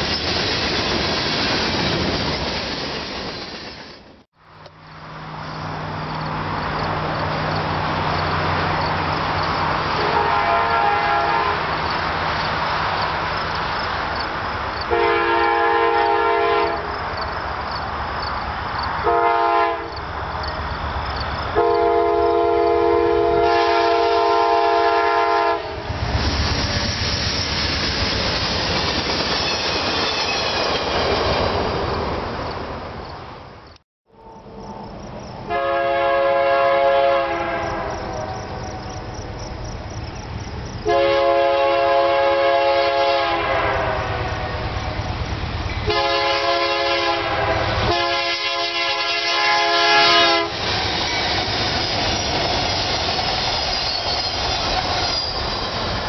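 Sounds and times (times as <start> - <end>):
rumble of rolling freight cars: 0.0 - 56.0
locomotive horn: 9.9 - 11.8, 14.9 - 16.9, 19.0 - 20.0, 21.6 - 25.9, 35.4 - 38.9, 40.8 - 44.8, 45.9 - 50.6.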